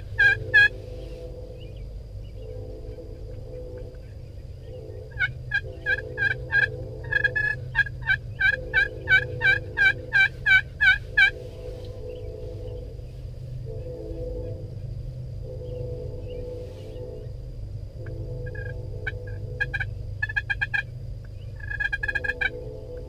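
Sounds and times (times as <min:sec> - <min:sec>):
turkey yelps: 0:00.0 - 0:00.7, 0:05.1 - 0:11.4, 0:21.6 - 0:22.5
steady low hum: 0:00.0 - 0:23.0.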